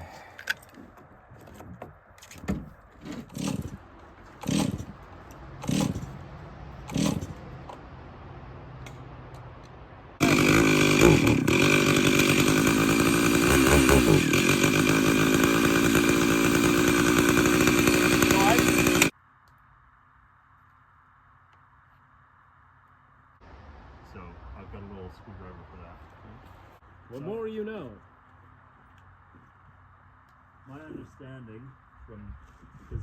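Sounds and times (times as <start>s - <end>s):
chainsaw starter cord tugs: 2.2s - 6.2s, 6.8s - 7.4s, 10.2s - 19.1s
chainsaw engine running: 3.3s - 5.0s, 5.6s - 6.2s, 6.8s - 7.4s, 10.2s - 19.1s.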